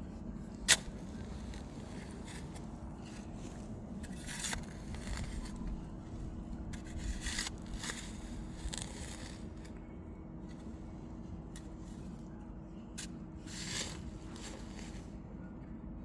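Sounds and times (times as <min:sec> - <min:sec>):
digging tool scraping clay soil: 0:00.2 - 0:09.8, 0:12.9 - 0:15.2
soil crumbling: 0:00.5 - 0:09.8, 0:13.0 - 0:15.1.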